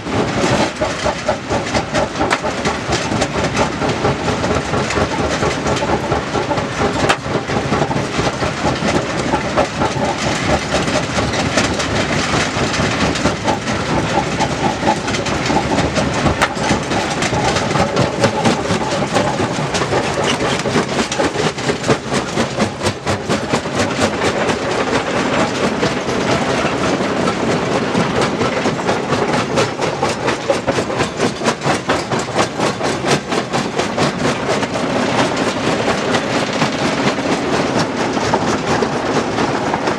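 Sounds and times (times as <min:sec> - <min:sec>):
stone crusher clattering: 0:00.2 - 0:39.0.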